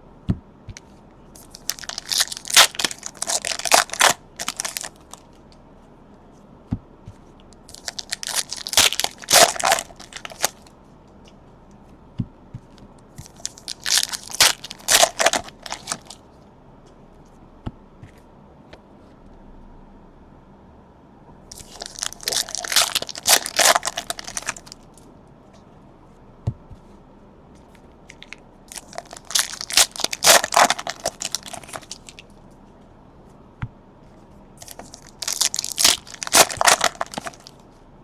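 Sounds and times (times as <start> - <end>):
plastic wrappers crinkling and tearing: 1.4 - 5.4, 7.7 - 10.7, 13.2 - 16.2, 21.5 - 25.0, 28.1 - 32.4, 34.6 - 37.6.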